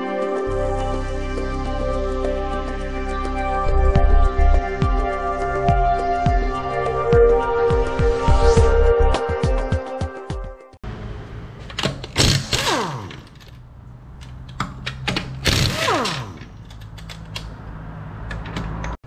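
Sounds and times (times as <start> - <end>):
metal clicks and clanks: 11.6 - 13.6, 14.2 - 17.6, 18.2 - 19.0
power tool rattling bursts: 12.0 - 13.6, 15.3 - 16.9.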